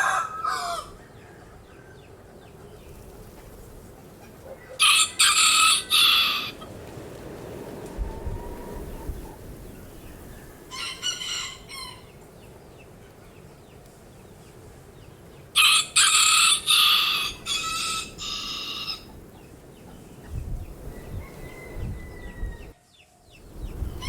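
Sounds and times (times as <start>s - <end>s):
rooster crowing: 0.0s - 2.1s, 4.8s - 6.7s, 10.2s - 12.1s, 15.6s - 19.2s, 20.8s - 22.8s.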